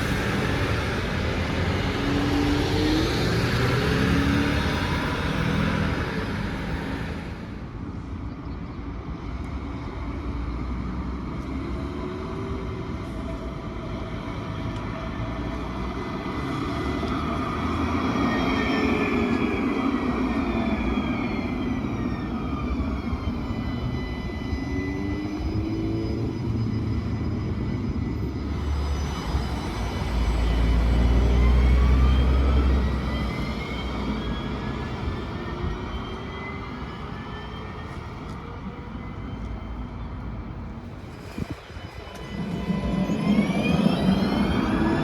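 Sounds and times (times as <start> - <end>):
transit vehicle passing: 15.4 - 45.0.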